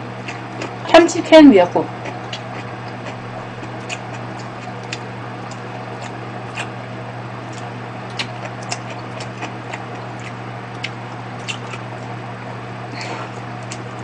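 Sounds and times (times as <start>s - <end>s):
steady low hum: 0.0s - 14.0s
mouth clicks while chewing: 2.0s - 6.8s, 7.5s - 11.9s, 13.6s - 14.0s.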